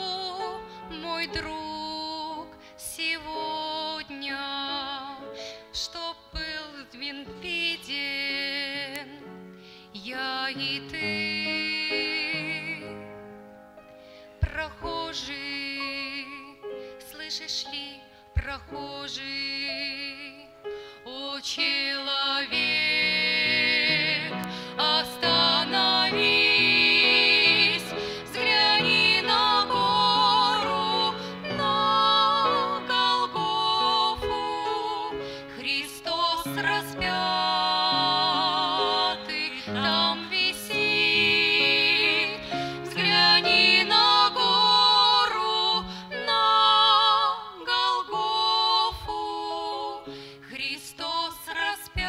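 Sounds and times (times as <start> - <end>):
women singing a slow hymn: 0.0 - 9.3, 9.9 - 13.1, 14.4 - 52.0
low musical accompaniment: 6.7 - 46.4.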